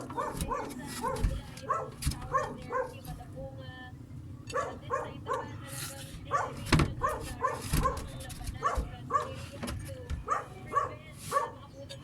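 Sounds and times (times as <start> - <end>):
dog yipping: 0.0 - 3.0, 4.5 - 5.6, 6.3 - 9.4, 10.2 - 11.6.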